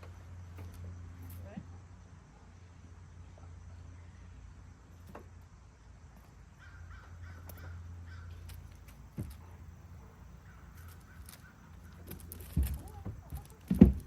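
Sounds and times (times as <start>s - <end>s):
bird cawing: 6.6s - 8.6s, 10.4s - 12.1s
dull thump: 9.1s - 9.6s, 12.4s - 14.0s.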